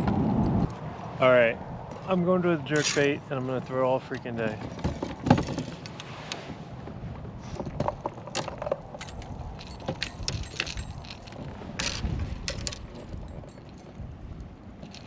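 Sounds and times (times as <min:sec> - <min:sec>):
metallic clicks and rattles: 0:08.3 - 0:14.0.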